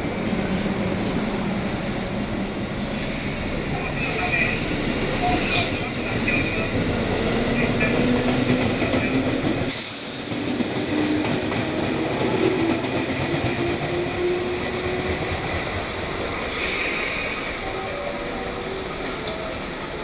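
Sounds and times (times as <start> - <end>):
electric train passing at speed: 0.0 - 20.0
burst of hiss: 9.6 - 10.7, 16.5 - 17.6.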